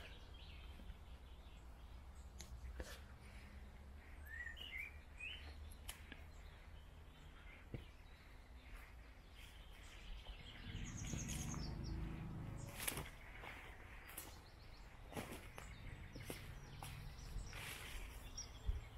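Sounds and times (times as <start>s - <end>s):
outdoor background noise: 0.0s - 18.9s
songbirds chirping: 0.0s - 18.9s
low rumble: 10.4s - 13.3s.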